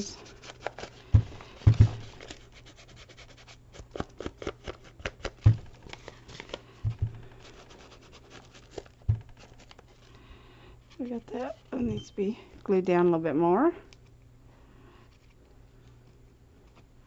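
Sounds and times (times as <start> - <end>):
hands rubbing paper: 0.0 - 10.1
dull knocks: 1.1 - 2.1, 6.9 - 7.3, 9.1 - 9.3.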